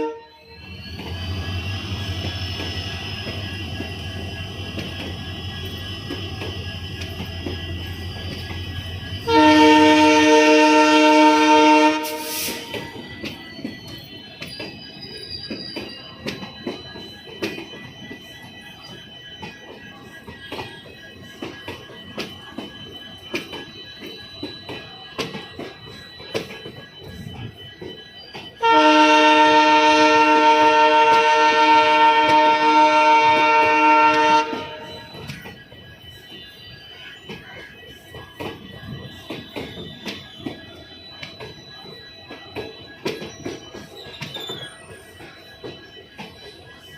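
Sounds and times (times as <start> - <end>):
locomotive air horn blast: 0.0 - 0.3, 9.3 - 12.7, 28.6 - 34.8.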